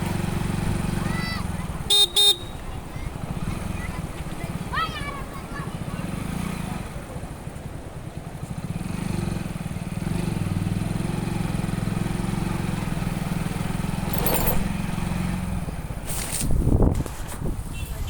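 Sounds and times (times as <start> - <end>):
motorcycle engine running: 0.0 - 17.2
short rattle: 14.0 - 14.8.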